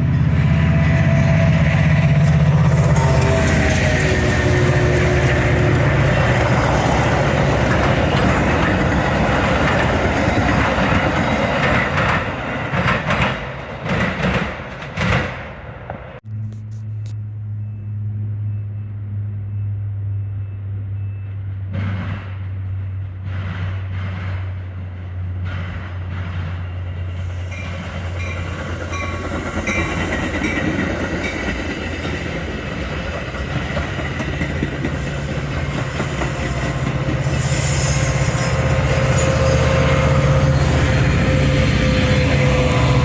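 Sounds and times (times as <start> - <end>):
locomotive engine hum: 0.0 - 43.0
rail and wheel noise: 0.0 - 43.0
wheel squeal: 34.2 - 43.0.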